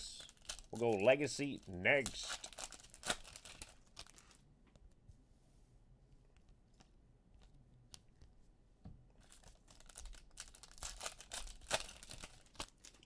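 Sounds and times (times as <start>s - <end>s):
plastic wrapper tearing and rustling: 0.0s - 4.4s, 9.2s - 13.0s.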